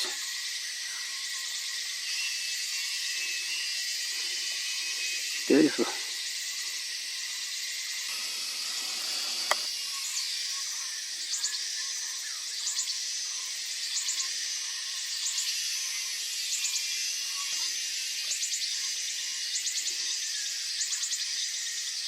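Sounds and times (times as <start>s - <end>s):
high-pitched insect chorus: 0.0s - 22.0s
short pulsing calls: 8.0s - 10.6s
sharp click: 9.0s - 9.7s.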